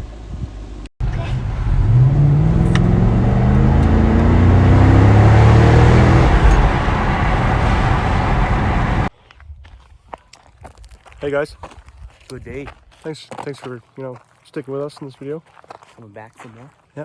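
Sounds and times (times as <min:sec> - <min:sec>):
car engine rumbling: 0:00.0 - 0:09.1.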